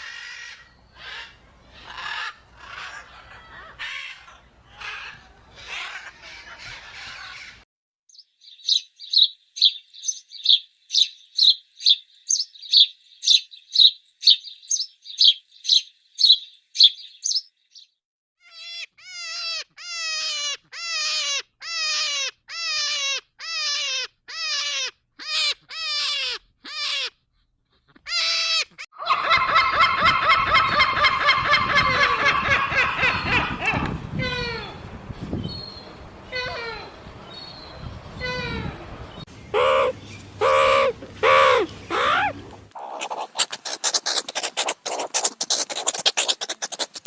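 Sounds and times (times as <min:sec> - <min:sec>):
chorus of overlapping bird calls: 0:00.0 - 0:07.6
high bird chirps: 0:08.1 - 0:18.0.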